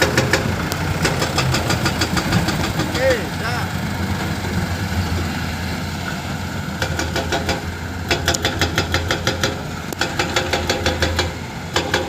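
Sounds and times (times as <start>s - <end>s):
sharp metallic knocks: 0.0s - 3.2s, 6.8s - 12.0s
diesel engine running: 0.0s - 12.0s.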